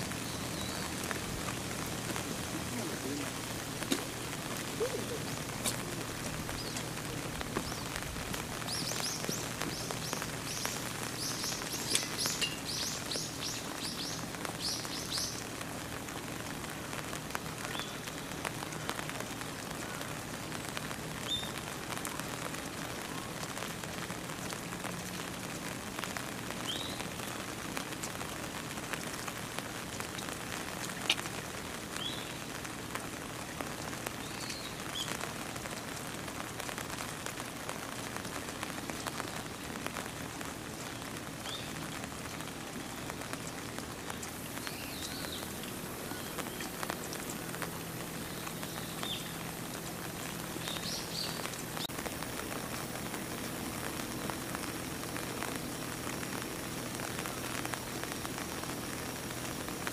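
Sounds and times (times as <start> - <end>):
small birds chirping: 0.0 - 16.0, 17.6 - 23.7, 26.1 - 28.4, 30.0 - 32.6, 33.9 - 35.9, 40.8 - 54.4
steady rain: 0.0 - 59.9.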